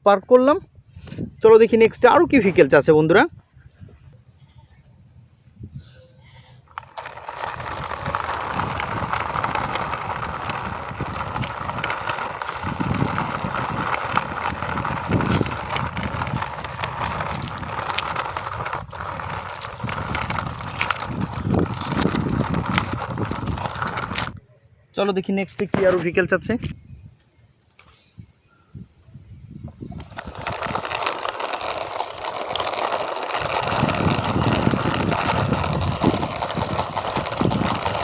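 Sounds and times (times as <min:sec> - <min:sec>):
toy car wheels rolling and rattling: 0:06.6 - 0:24.4, 0:29.8 - 0:38.0.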